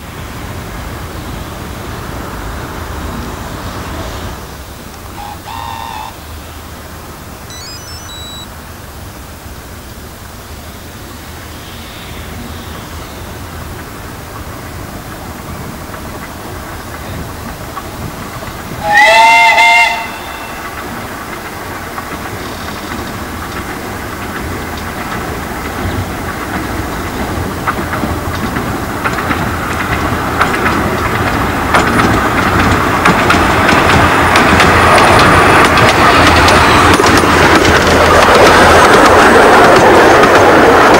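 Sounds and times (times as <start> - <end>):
train running: 0.0 - 40.9
train whistle chord: 5.2 - 6.2, 18.8 - 20.7
wheels clicking over rail joints: 13.4 - 40.9.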